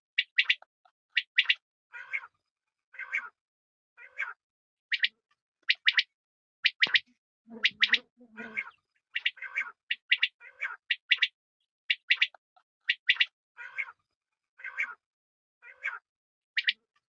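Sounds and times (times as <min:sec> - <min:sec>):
quail calling: 0:01.2 - 0:02.3, 0:03.0 - 0:03.4, 0:04.0 - 0:05.1, 0:05.7 - 0:14.0, 0:14.6 - 0:15.0, 0:15.6 - 0:16.0.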